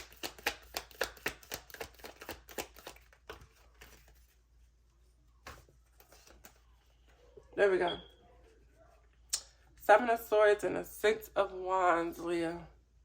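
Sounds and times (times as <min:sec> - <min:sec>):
cards being shuffled: 0:00.0 - 0:04.4, 0:05.4 - 0:06.8.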